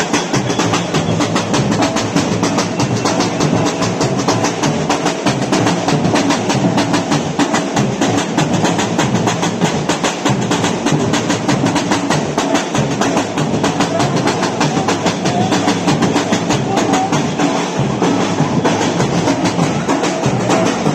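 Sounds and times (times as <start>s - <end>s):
samba drum ensemble playing: 0.0s - 20.9s.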